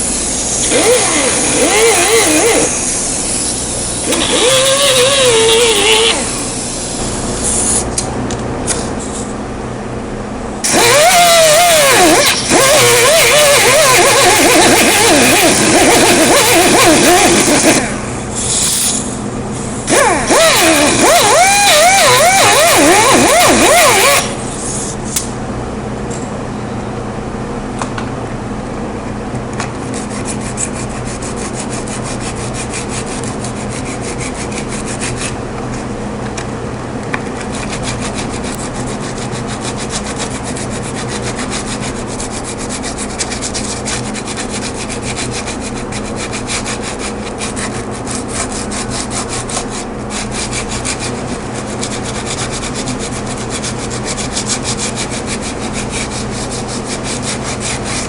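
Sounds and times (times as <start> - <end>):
power sander rasping on plastic: 0.6 - 2.8, 4.0 - 6.5, 10.6 - 18.0, 19.9 - 24.4, 29.8 - 35.4, 37.2 - 58.0.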